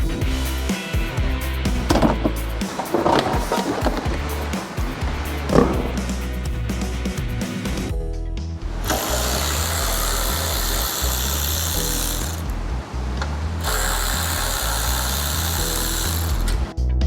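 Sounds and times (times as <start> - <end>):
music with bass beat: 0.0 - 12.9
cordless drill running: 8.8 - 12.6, 13.6 - 16.7.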